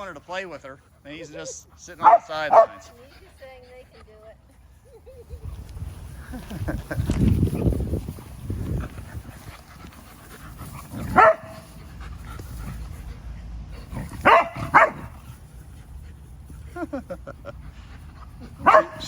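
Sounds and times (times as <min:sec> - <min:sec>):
dog barking: 0:02.0 - 0:02.9, 0:11.1 - 0:11.6, 0:14.2 - 0:15.1, 0:18.6 - 0:19.0.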